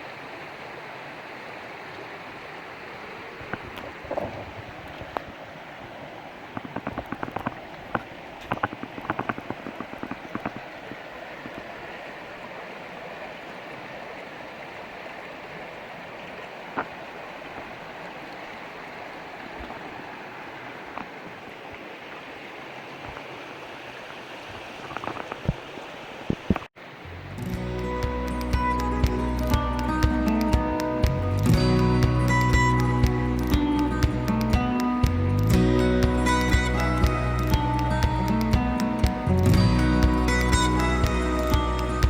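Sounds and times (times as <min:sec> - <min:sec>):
sharp clicks and taps: 0:06.6 - 0:10.7, 0:27.4 - 0:42.0
waterfall rushing: 0:26.8 - 0:42.0.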